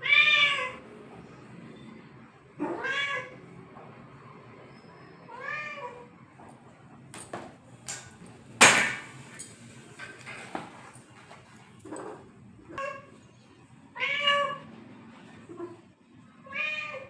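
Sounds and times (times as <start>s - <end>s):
cat meowing: 0.0s - 0.8s, 2.6s - 3.4s, 16.5s - 17.0s
knocks and clatters: 7.2s - 11.2s.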